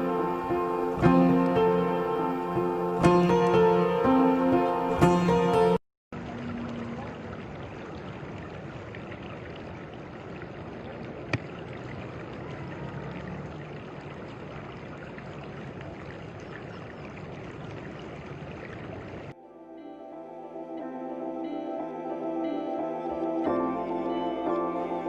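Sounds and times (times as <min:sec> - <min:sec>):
stream water flowing: 0:00.0 - 0:19.4.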